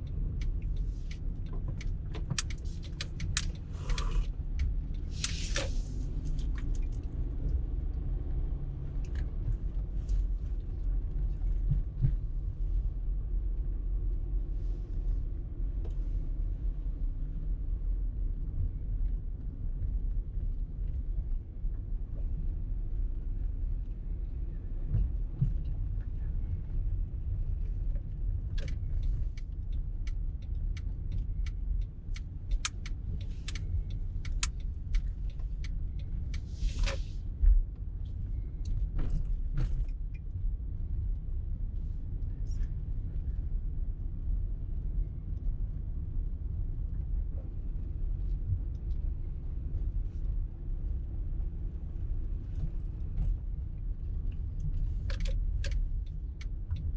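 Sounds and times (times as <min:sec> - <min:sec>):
road and engine rumble: 0:00.0 - 0:56.9
sharp clicks and rattles: 0:01.5 - 0:04.7.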